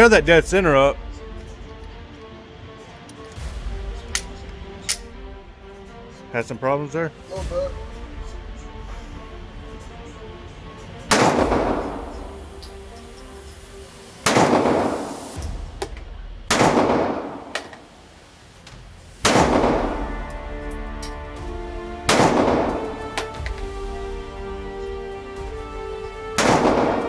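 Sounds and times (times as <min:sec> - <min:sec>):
background music: 0:00.0 - 0:27.0
pistol shots echoing: 0:11.1 - 0:12.6, 0:14.2 - 0:18.0, 0:19.2 - 0:21.1, 0:22.1 - 0:23.4, 0:26.4 - 0:27.0.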